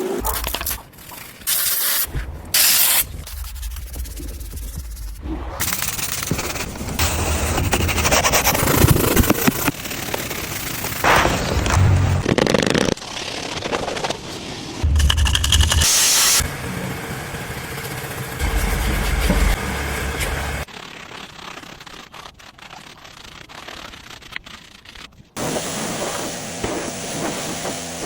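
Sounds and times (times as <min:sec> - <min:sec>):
pressure washer spraying: 0:15.4 - 0:20.7, 0:25.4 - 0:28.0.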